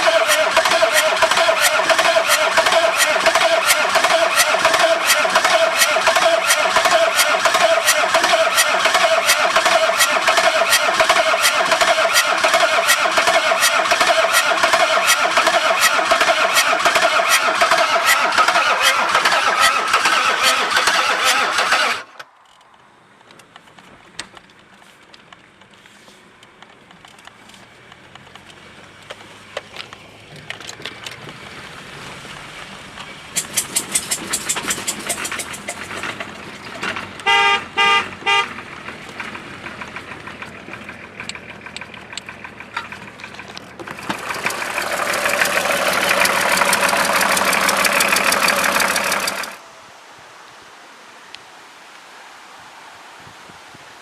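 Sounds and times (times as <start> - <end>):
diesel engine clattering: 0.0 - 49.6
quiet engine hum: 22.1 - 51.5
regular ticking: 33.3 - 36.4, 38.9 - 49.6.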